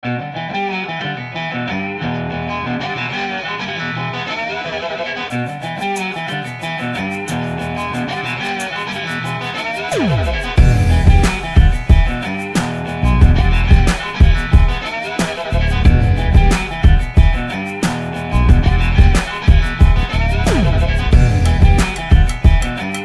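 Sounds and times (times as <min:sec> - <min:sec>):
guitar music with steady beat: 0:00.0 - 0:23.0
high ticking percussion: 0:05.3 - 0:23.0
falling pitch sweep: 0:09.9 - 0:11.9.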